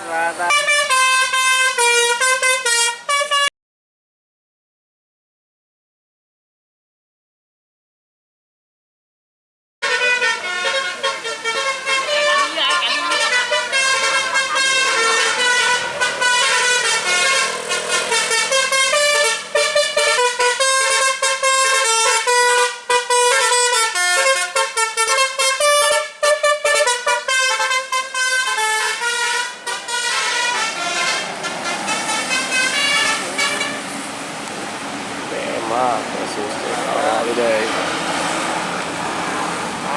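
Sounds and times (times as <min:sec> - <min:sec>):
bus horn playing melody: 0:00.0 - 0:03.5, 0:09.8 - 0:34.2.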